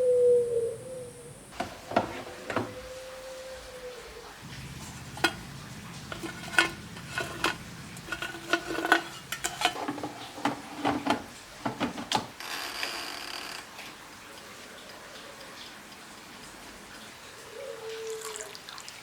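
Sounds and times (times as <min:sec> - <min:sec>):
metal utensils clinking on pots: 0:04.4 - 0:12.4.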